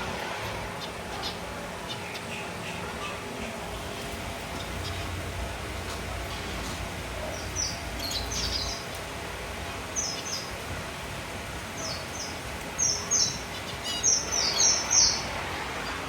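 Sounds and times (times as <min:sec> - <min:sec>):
finches chirping: 0:07.2 - 0:08.9, 0:11.8 - 0:15.3.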